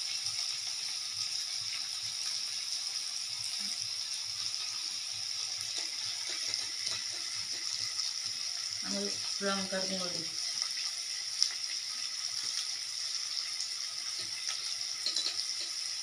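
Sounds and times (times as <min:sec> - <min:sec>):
onions sizzling in oil: 0:00.0 - 0:16.0
spoon clinking on bowls: 0:15.0 - 0:15.8.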